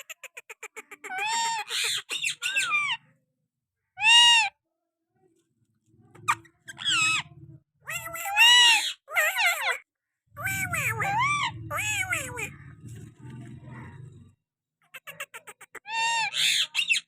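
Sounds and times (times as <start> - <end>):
parrot calling: 0.0 - 3.2, 4.0 - 4.6, 6.2 - 12.9, 14.9 - 17.0.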